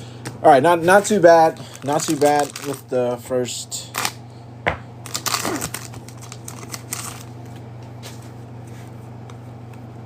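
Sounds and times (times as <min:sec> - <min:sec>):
low electrical hum: 0:00.0 - 0:10.0
packaging crinkling: 0:01.0 - 0:02.9, 0:05.0 - 0:07.5
cards shuffling: 0:05.1 - 0:07.3.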